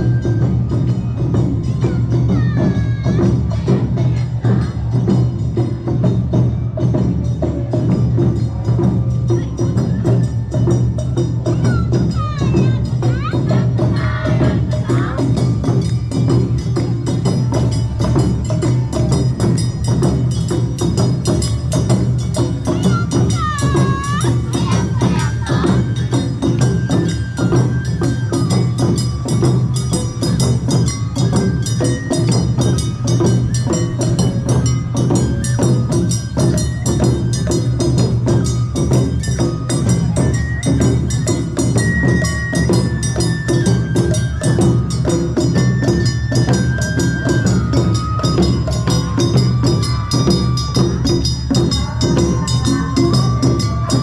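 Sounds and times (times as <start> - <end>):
high flute melody: 0.0 - 2.5, 22.6 - 54.0
drums beating: 0.0 - 54.0
hand-held gongs clanging: 0.4 - 54.0.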